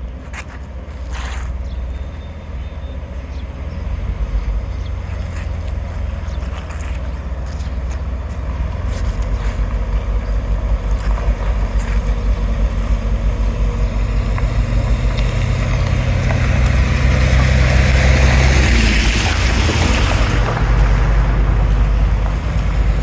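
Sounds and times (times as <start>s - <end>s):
heavy diesel engine running: 0.0s - 23.0s.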